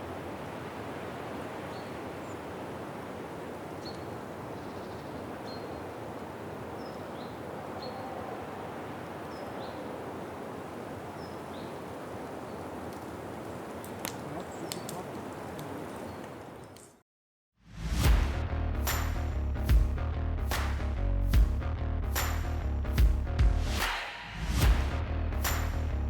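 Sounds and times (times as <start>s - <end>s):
steady rushing background: 23.0s - 26.0s.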